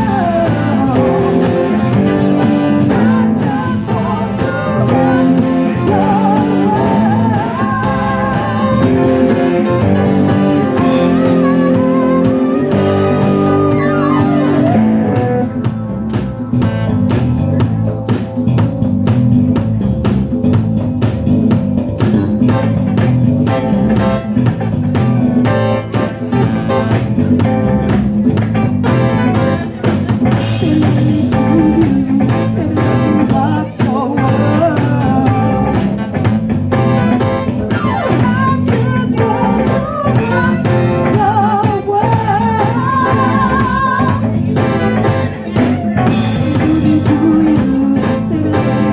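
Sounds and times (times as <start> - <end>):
person singing: 0.0 - 15.9, 30.2 - 48.9
drums keeping a steady beat: 0.0 - 48.9
guitar: 0.0 - 48.9.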